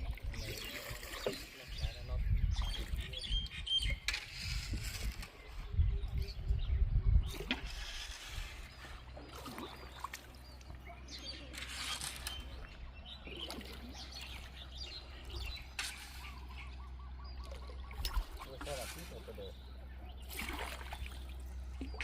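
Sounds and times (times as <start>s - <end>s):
birds chirping: 0.0s - 22.0s
river trickling: 8.7s - 11.5s, 12.2s - 16.5s, 17.4s - 22.0s.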